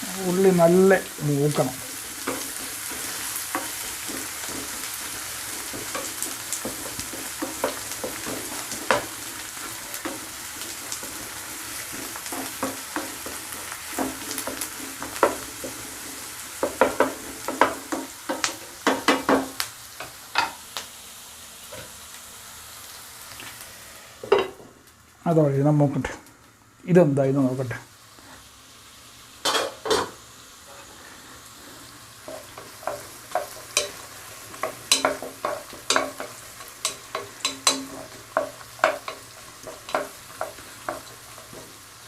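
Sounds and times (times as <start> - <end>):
onions sizzling in a pan: 0.0 - 42.0
spatula knocking against pan: 2.2 - 9.1, 16.6 - 19.6, 34.6 - 41.7.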